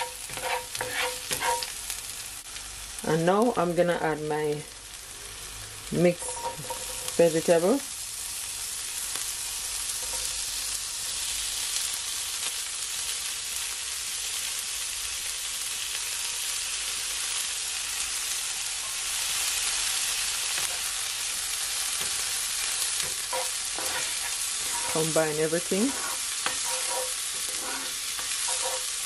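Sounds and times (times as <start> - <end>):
spoon stirring: 0.0 - 1.7, 23.0 - 29.0
vegetables sizzling in oil: 0.0 - 29.0.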